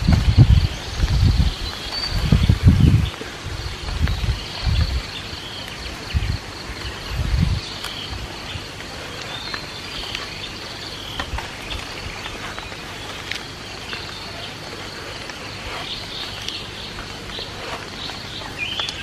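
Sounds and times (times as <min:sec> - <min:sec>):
insects buzzing: 0:00.0 - 0:19.0
bird chirps: 0:04.1 - 0:19.0.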